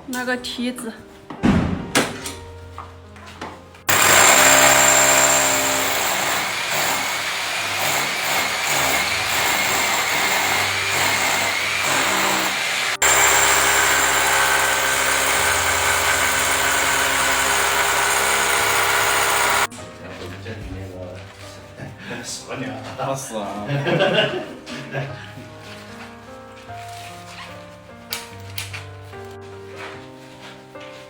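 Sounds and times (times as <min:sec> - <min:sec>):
electric power drill running: 0:03.9 - 0:19.7.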